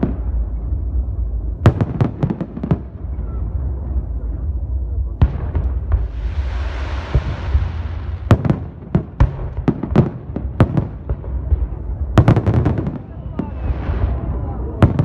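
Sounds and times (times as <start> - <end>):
fireworks bangs: 1.6 - 15.0
fireworks hissing crackle: 5.4 - 12.1.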